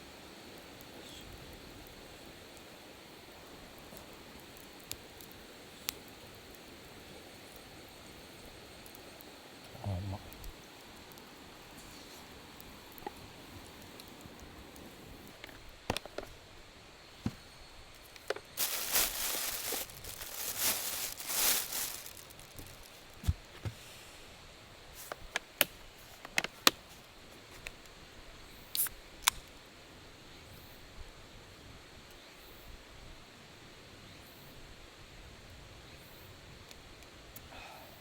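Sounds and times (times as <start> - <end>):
rustling and scraping: 17.2 - 23.9.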